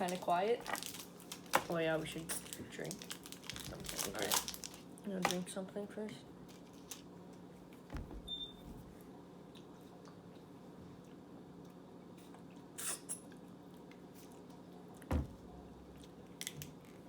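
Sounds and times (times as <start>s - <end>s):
eating and handling sounds: 0.0s - 5.6s, 6.3s - 7.9s, 8.9s - 15.1s, 15.8s - 17.0s
dull thump: 7.9s - 9.0s, 15.1s - 15.6s
steady low hum: 13.4s - 17.0s.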